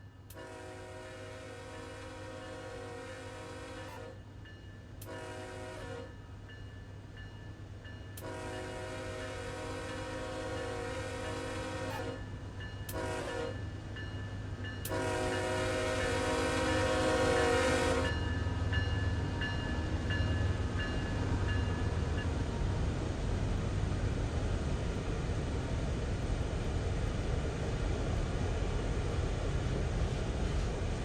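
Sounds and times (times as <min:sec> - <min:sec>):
train rumble: 0:00.0 - 0:31.0
locomotive air horn: 0:00.3 - 0:04.2, 0:05.0 - 0:06.1, 0:08.2 - 0:12.2, 0:12.9 - 0:13.6, 0:14.9 - 0:18.2.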